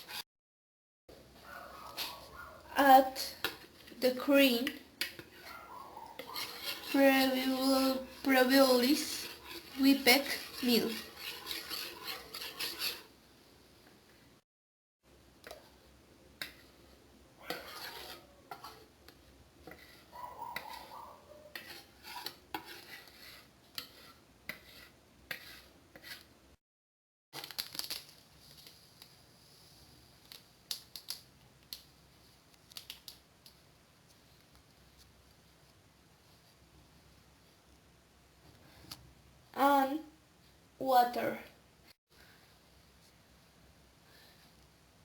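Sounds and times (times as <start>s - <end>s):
utensil scraping steel bowl: 0.0s - 0.2s, 1.9s - 13.2s, 16.4s - 26.3s.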